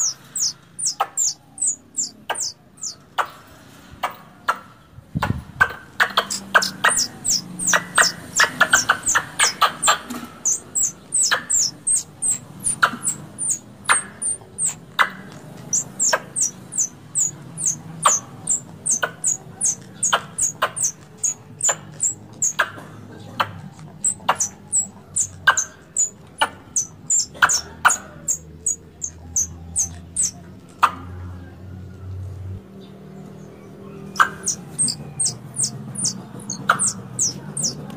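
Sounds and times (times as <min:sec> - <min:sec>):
squirrel chattering calls: 0:00.0 - 0:03.3, 0:05.6 - 0:31.0, 0:34.0 - 0:37.9.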